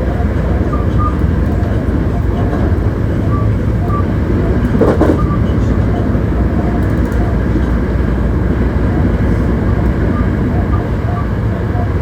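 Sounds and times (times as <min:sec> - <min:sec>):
train wheels rumbling on rail: 0:00.0 - 0:12.0
train car body noise: 0:04.3 - 0:05.8.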